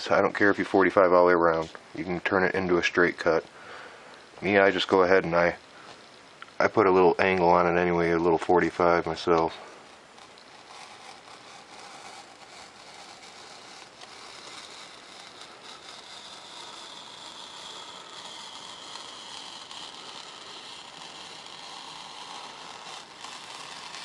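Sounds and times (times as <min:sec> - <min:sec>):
knife cutting foam sheet: 0:08.4 - 0:24.0.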